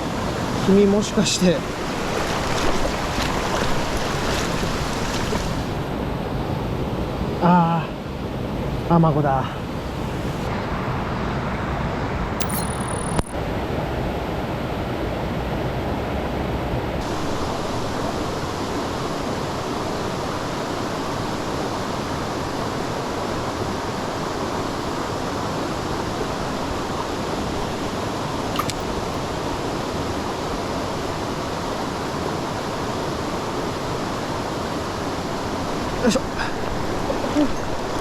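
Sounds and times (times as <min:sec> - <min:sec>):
faint click: 0:12.4 - 0:13.4, 0:28.6 - 0:28.9.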